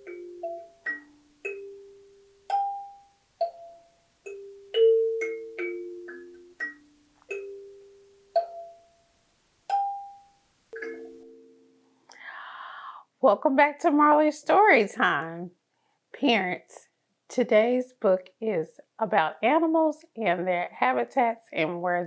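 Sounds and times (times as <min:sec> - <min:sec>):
mallet percussion melody: 0:00.0 - 0:09.0, 0:09.7 - 0:11.8.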